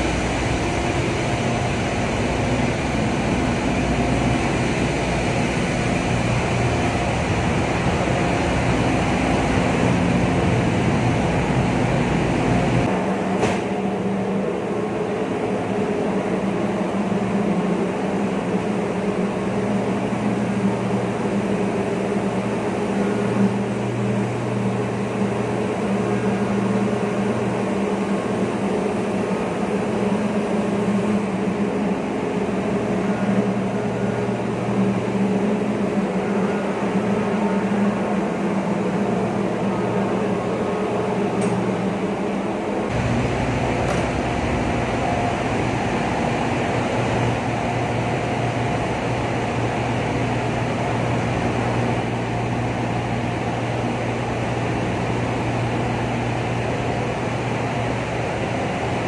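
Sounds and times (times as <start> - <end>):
engine room machinery din: 0.0 - 59.0.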